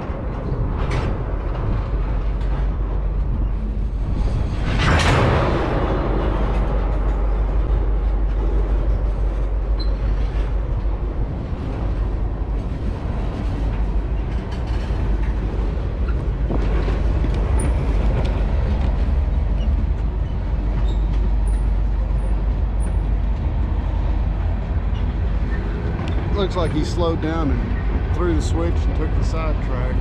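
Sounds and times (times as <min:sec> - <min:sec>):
freight train rolling on rails: 0:00.0 - 0:30.0.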